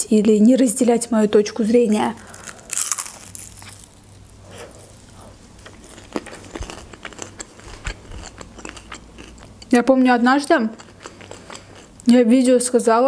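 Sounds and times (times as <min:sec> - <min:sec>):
person chewing pastry: 0:02.2 - 0:09.8, 0:10.5 - 0:12.1.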